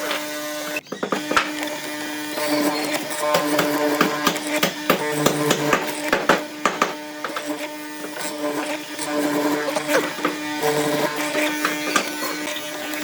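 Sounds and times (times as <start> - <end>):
power tool motor humming: 0.0 - 13.0
clicks and knocks on wood: 3.4 - 7.6.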